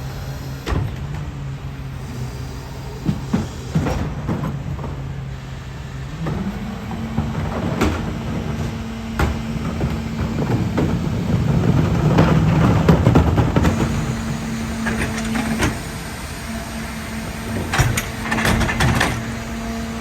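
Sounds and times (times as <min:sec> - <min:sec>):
garbage truck diesel engine running: 0:00.0 - 0:20.0
clanks and knocks: 0:06.2 - 0:16.0, 0:17.5 - 0:19.7.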